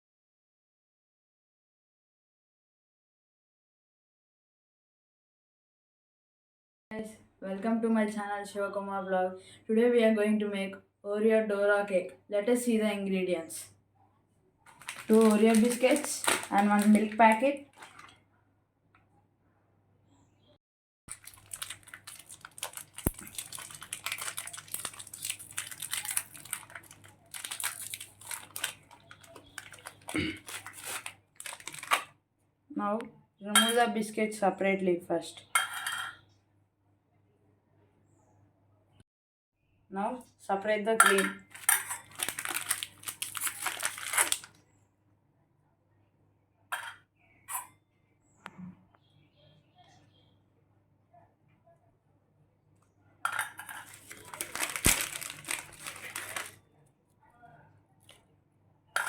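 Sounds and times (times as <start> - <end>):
plastic packet crinkling and tearing: 14.7 - 18.1, 21.1 - 32.1, 41.4 - 44.6, 53.5 - 56.6.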